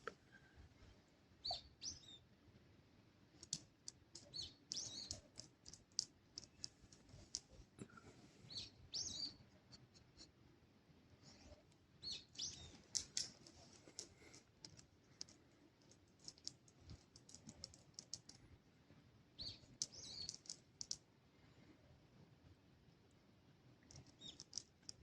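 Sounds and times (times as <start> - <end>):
faint high bird chirps: 0.3 - 2.3, 4.2 - 5.5, 8.5 - 9.5, 12.0 - 13.3, 19.4 - 20.6, 24.0 - 24.6.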